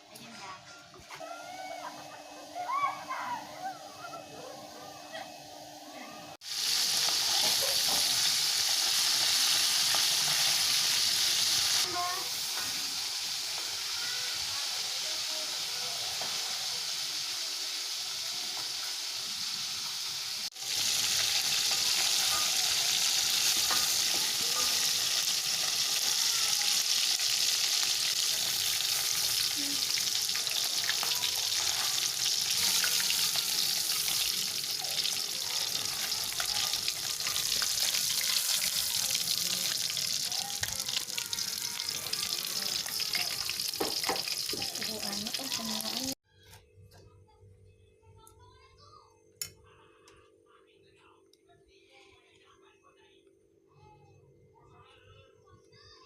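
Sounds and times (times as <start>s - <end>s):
food sizzling in hot oil: 6.3s - 46.2s.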